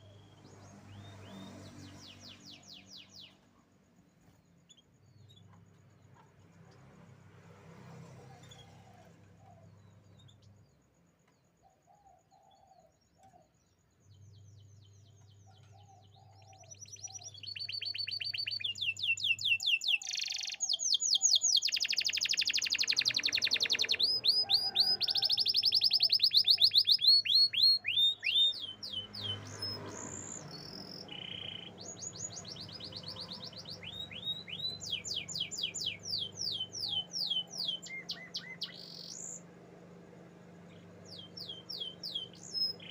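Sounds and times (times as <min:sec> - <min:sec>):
canary singing: 0:00.0 - 0:03.4, 0:14.1 - 0:42.9.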